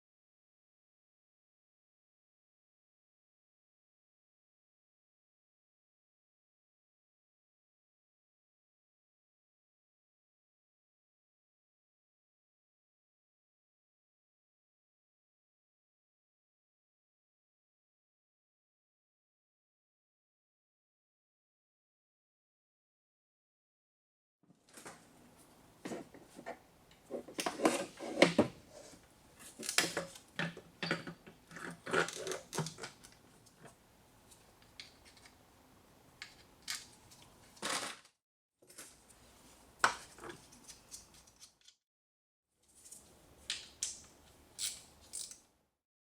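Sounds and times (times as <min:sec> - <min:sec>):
metallic clinks and scrapes of tools: 0:42.6 - 0:45.5.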